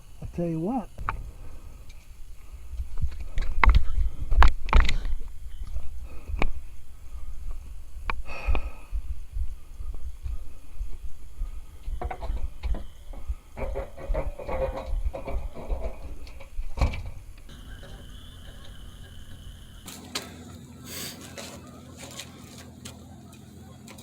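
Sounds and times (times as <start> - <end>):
low rumbling buffeting: 0.0 - 23.9
sharp knocks and clatter: 11.9 - 20.4.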